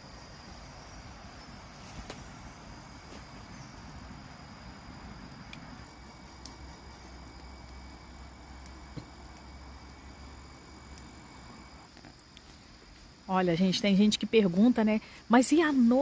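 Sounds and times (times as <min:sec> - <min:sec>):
night insects calling: 0:00.0 - 0:16.0.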